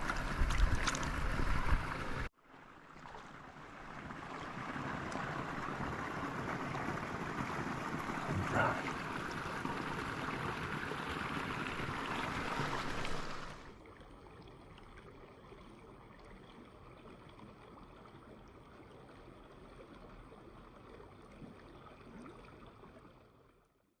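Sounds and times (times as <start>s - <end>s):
river water rushing: 3.1s - 13.7s.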